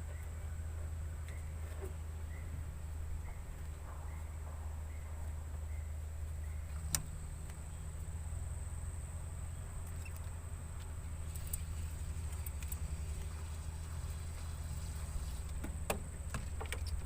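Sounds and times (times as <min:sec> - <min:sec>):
low rumble: 0:00.0 - 0:16.3
sharp clicks: 0:06.7 - 0:07.6.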